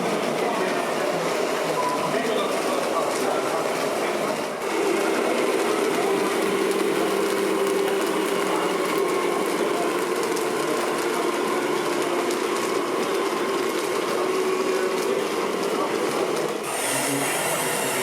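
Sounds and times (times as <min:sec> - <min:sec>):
electric motor gear whine: 0:16.5 - 0:18.0.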